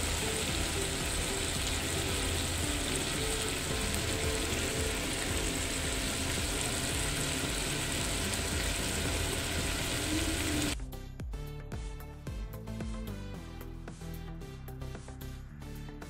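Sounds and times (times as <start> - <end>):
food sizzling in oil: 0.0 - 10.8.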